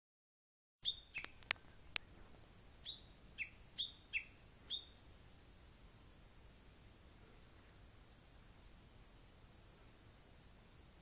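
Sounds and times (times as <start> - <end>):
wild bird calling: 0.8 - 1.8, 2.8 - 5.0
sharp ticks: 1.2 - 2.1.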